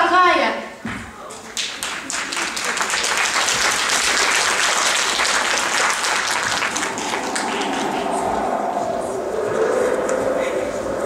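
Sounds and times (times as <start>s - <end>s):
audience applauding: 1.3s - 8.4s.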